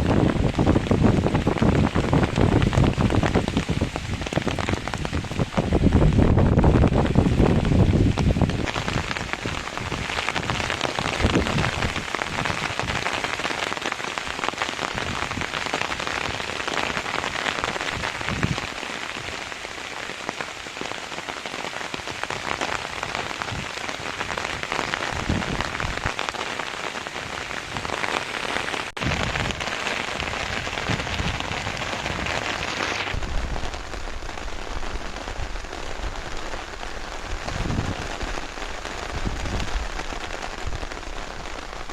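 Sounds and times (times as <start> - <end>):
heavy rain falling: 0.0 - 41.9.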